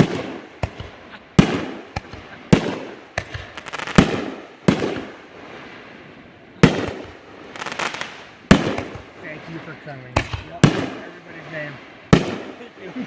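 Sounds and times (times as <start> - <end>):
small firework pops: 0.0 - 5.1, 6.6 - 9.1, 10.2 - 10.9
fireworks booming: 0.0 - 13.0.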